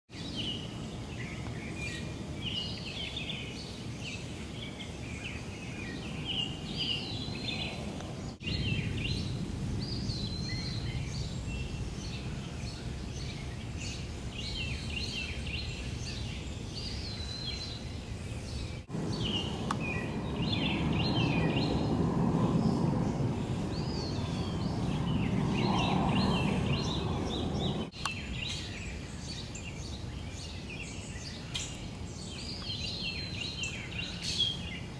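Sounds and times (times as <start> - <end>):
birds chirping and singing: 0.2 - 34.9
low background rumble: 6.0 - 16.9, 18.2 - 27.9.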